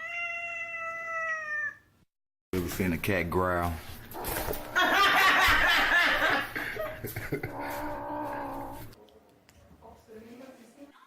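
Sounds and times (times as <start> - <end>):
cat yowling: 0.0 - 1.9
cat growling: 7.4 - 9.0.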